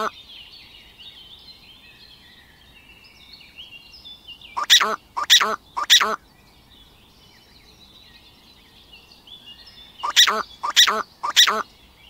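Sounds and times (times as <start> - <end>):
small birds twittering: 0.0 - 12.0
large bird calling: 4.5 - 6.2, 10.0 - 11.7.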